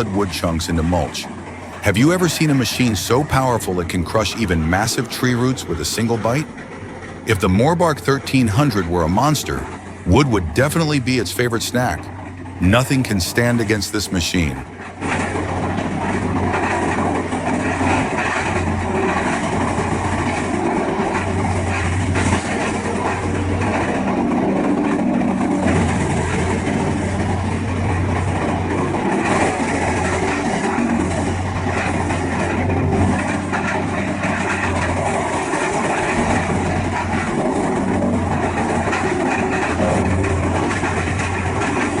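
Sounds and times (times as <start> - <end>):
heavy diesel drone: 0.0 - 42.0
wood grinding clatter: 14.8 - 42.0.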